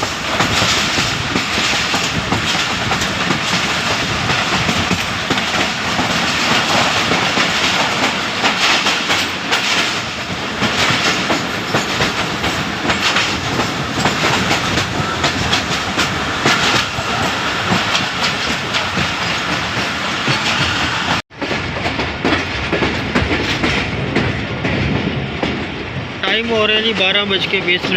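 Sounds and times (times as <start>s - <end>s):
train running noise: 0.0s - 27.9s
train wheels clacking over rail joints: 0.0s - 27.9s.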